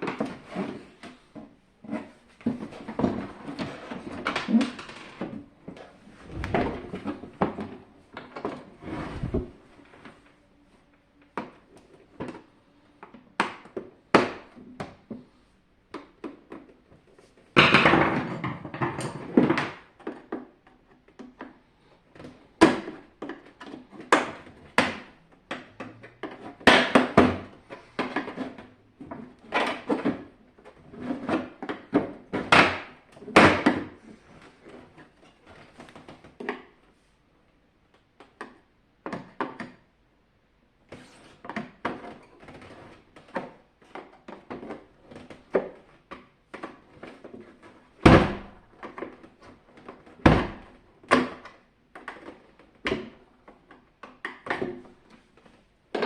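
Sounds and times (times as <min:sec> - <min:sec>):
rattling scrape: 0:08.8 - 0:09.6
plastic parts clicking and knocking: 0:15.9 - 0:17.0, 0:17.6 - 0:36.8, 0:38.0 - 0:40.1, 0:41.2 - 0:56.0.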